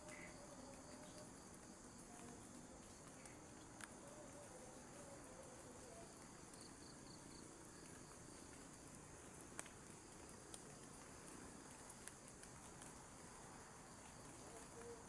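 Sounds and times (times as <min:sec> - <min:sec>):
faint clicks: 0:09.6 - 0:13.0.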